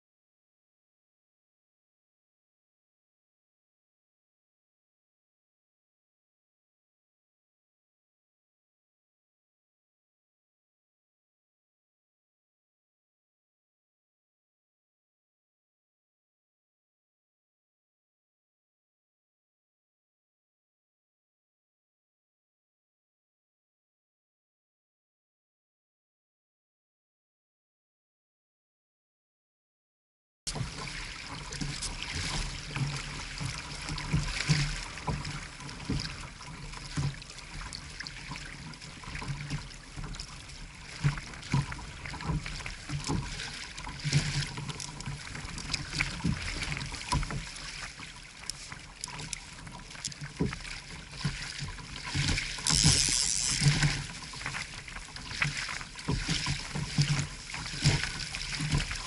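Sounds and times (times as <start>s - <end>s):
water sloshing and splashing: 30.5s - 59.0s.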